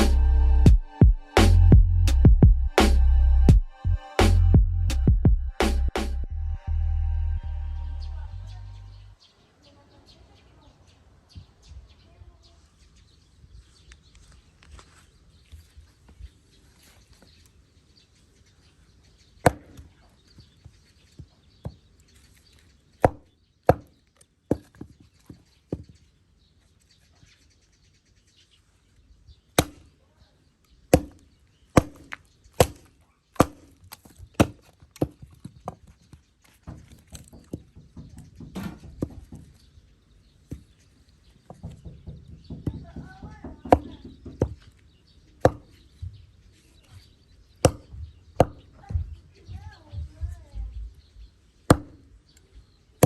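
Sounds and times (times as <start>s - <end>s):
chopping wood: 19.4s - 19.9s, 23.0s - 24.9s, 29.6s - 29.9s, 30.9s - 35.9s, 41.5s - 44.7s, 45.4s - 45.8s, 47.6s - 48.7s, 51.7s - 52.1s.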